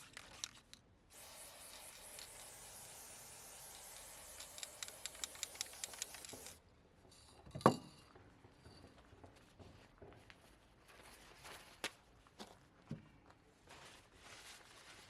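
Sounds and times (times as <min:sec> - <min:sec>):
steady hiss: 0:01.1 - 0:06.6
sharp clicks: 0:04.3 - 0:06.6.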